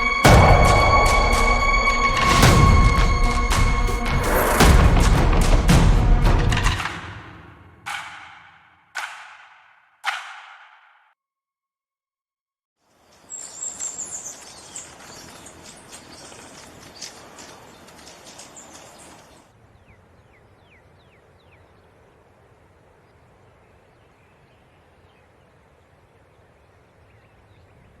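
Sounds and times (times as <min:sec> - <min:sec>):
hissy background noise: 0:12.9 - 0:28.0
bird chirps: 0:13.0 - 0:21.9.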